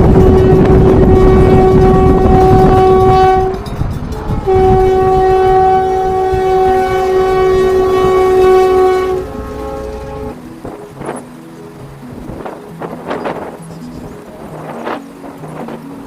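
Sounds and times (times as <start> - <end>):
train horn blasts: 0.0 - 10.4
train rumbling: 0.0 - 16.0.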